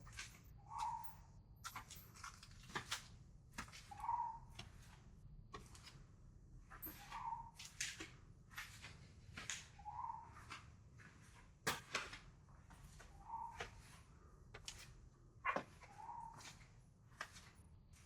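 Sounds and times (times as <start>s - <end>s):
footsteps walking: 6.7s - 18.0s.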